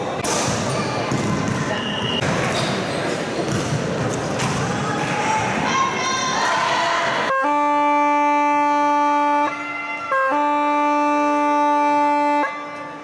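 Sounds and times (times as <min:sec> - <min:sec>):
scoreboard horn buzzing: 0:07.3 - 0:13.0.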